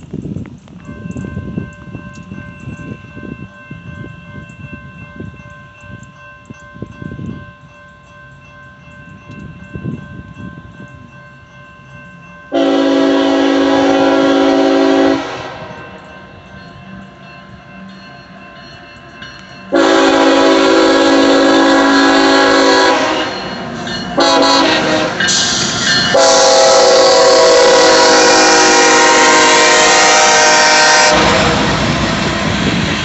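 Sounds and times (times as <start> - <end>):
freight train rumbling: 0.0 - 33.0
crossing bell ringing: 0.6 - 33.0
locomotive air horn blast: 12.5 - 16.0, 19.7 - 33.0.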